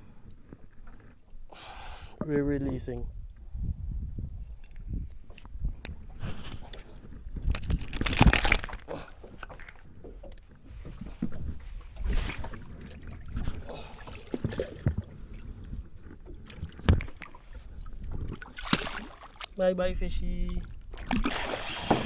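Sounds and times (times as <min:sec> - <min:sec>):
knocks and bumps in boat: 0:21.8 - 0:22.0.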